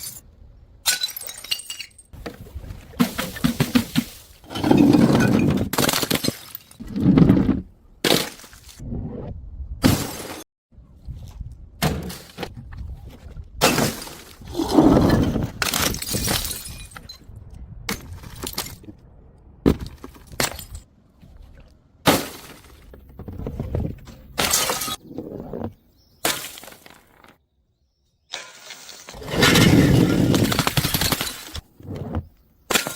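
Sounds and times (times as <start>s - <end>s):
glass bottles smashing: 0.8s - 2.2s, 15.6s - 17.2s.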